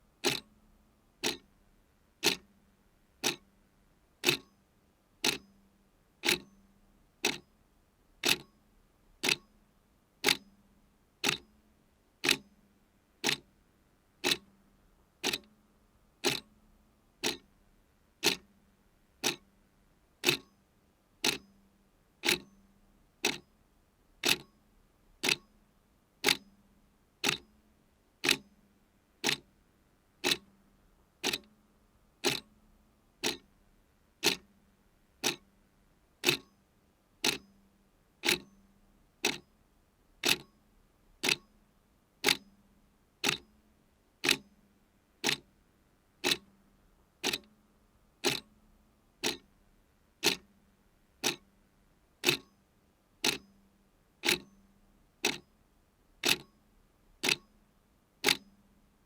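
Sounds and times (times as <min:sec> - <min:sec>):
clock ticking: 0:00.2 - 0:00.5, 0:01.2 - 0:01.4, 0:02.2 - 0:02.4, 0:03.2 - 0:03.4, 0:04.2 - 0:04.5, 0:05.2 - 0:05.4, 0:06.2 - 0:06.5, 0:08.2 - 0:08.5, 0:09.2 - 0:09.4, 0:10.2 - 0:10.4, 0:11.2 - 0:11.4, 0:12.2 - 0:12.4, 0:13.2 - 0:13.4, 0:14.2 - 0:14.4, 0:15.2 - 0:15.5, 0:16.2 - 0:16.5, 0:17.2 - 0:17.5, 0:18.2 - 0:18.4, 0:19.2 - 0:19.4, 0:20.2 - 0:20.5, 0:21.2 - 0:21.4, 0:22.2 - 0:22.5, 0:23.2 - 0:23.4, 0:24.2 - 0:24.5, 0:25.2 - 0:25.4, 0:26.2 - 0:26.4, 0:27.2 - 0:27.4, 0:28.2 - 0:28.4, 0:29.2 - 0:29.4, 0:30.2 - 0:30.5, 0:31.2 - 0:31.5, 0:32.2 - 0:32.5, 0:33.2 - 0:33.5, 0:34.2 - 0:34.5, 0:35.2 - 0:35.4, 0:36.2 - 0:36.5, 0:37.2 - 0:37.5, 0:38.2 - 0:38.5, 0:39.2 - 0:39.4, 0:40.2 - 0:40.5, 0:41.2 - 0:41.5, 0:42.2 - 0:42.4, 0:43.2 - 0:43.4, 0:44.2 - 0:44.4, 0:45.2 - 0:45.4, 0:46.2 - 0:46.5, 0:47.2 - 0:47.5, 0:48.2 - 0:48.5, 0:49.2 - 0:49.5, 0:50.2 - 0:50.5, 0:51.2 - 0:51.4, 0:52.2 - 0:52.5, 0:53.2 - 0:53.5, 0:54.2 - 0:54.5, 0:55.2 - 0:55.4, 0:56.2 - 0:56.5, 0:57.2 - 0:57.5, 0:58.2 - 0:58.4.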